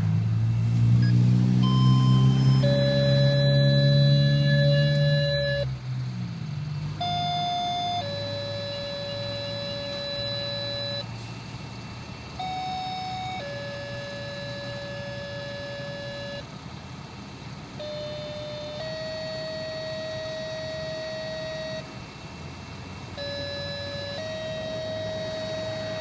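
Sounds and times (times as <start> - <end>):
two-tone alert tones over radio: 1.0 - 5.7, 7.0 - 11.2, 12.4 - 16.5, 17.8 - 21.9, 23.2 - 26.0.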